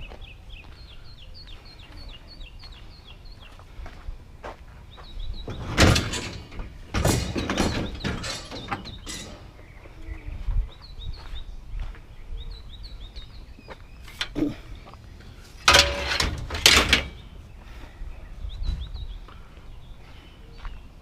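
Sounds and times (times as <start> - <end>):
small birds chirping: 0.0 - 15.9, 16.7 - 21.0.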